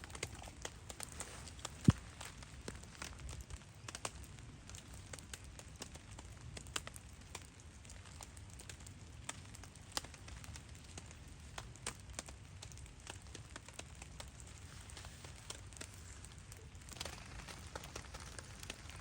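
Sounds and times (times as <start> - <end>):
campfire crackling: 0.0 - 19.0
rain hissing: 14.2 - 19.0.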